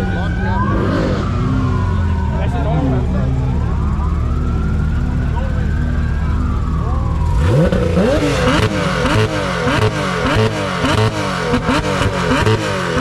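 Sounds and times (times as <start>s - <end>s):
car engine revving in blips: 0.0s - 13.0s.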